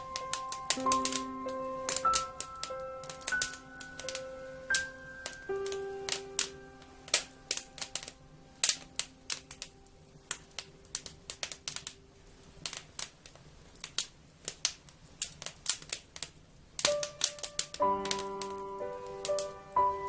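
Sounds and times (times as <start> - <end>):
soft music notes: 0.0 - 12.2, 16.8 - 20.0
wood fire crackling: 0.0 - 20.0.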